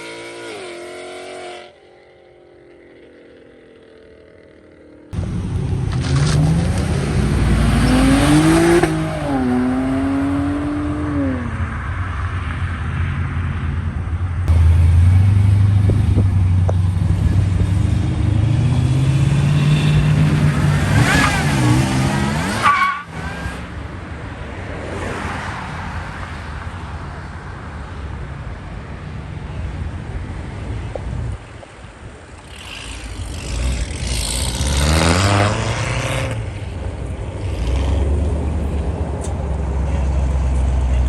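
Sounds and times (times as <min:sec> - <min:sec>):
car engines revving hard: 0:05.1 - 0:11.8, 0:14.5 - 0:23.9, 0:32.3 - 0:41.0.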